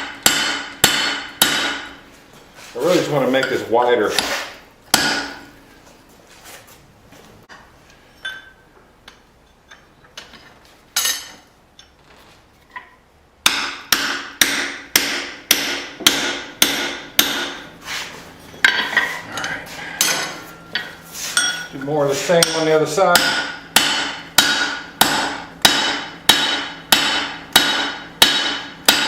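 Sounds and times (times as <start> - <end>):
hammer striking hot steel on anvil: 0.0 - 2.0, 4.2 - 5.5, 13.4 - 17.7, 18.6 - 29.0.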